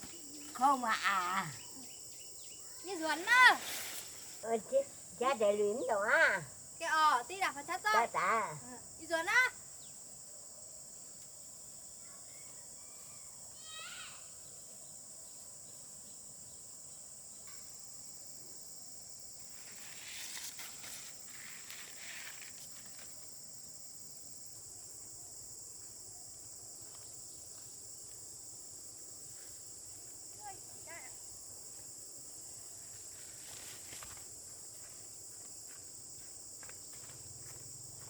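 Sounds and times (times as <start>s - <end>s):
insects droning: 0.0s - 38.0s
rustling and crackling: 19.6s - 23.3s.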